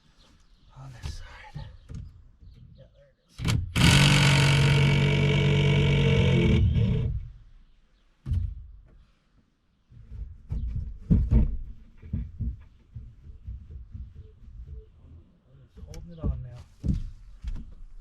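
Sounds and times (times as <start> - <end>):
knocks and thumps: 1.2 - 2.8, 8.2 - 9.0, 9.9 - 15.0, 15.7 - 17.9
power tool motor running: 3.6 - 7.2.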